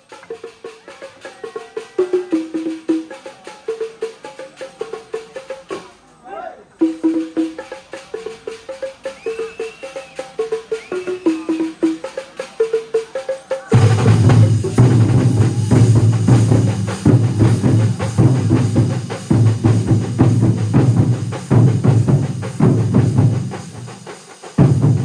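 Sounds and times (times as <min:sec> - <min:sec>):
massed drum ensemble: 0:13.7 - 0:25.0
deep bass drum beats: 0:13.8 - 0:25.0.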